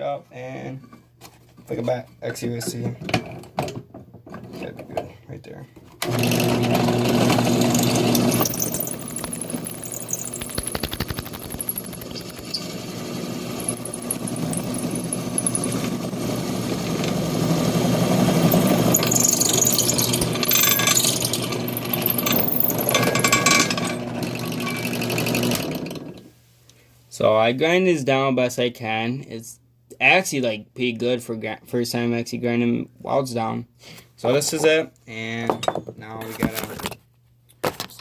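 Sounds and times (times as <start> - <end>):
grinder motor hum: 6.0 - 26.1
grinding on metal: 6.1 - 10.2, 11.4 - 26.2.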